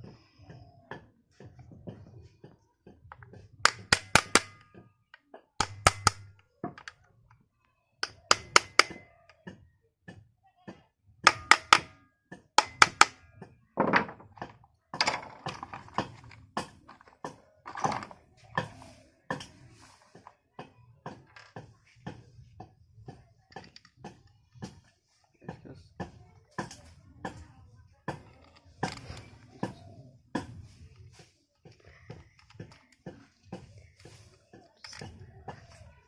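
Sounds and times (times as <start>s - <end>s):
hard metallic knocks: 3.6s - 4.9s, 11.2s - 18.2s.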